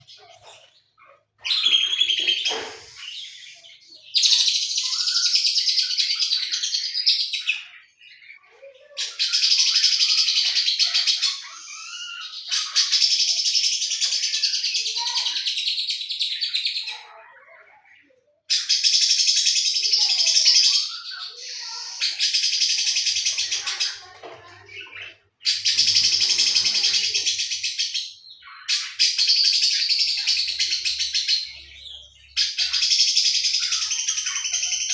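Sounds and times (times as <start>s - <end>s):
bird singing rapid chattering trills: 18.6s - 34.9s.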